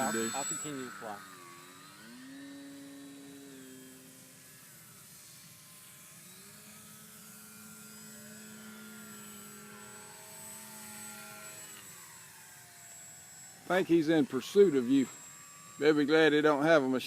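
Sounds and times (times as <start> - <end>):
model airplane motors buzzing: 0.0 - 17.0.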